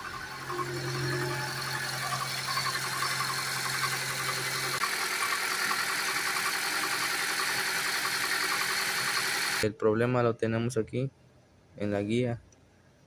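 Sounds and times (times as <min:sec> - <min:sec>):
low hum: 0:00.0 - 0:04.8
engine running with light knocking: 0:00.0 - 0:09.6.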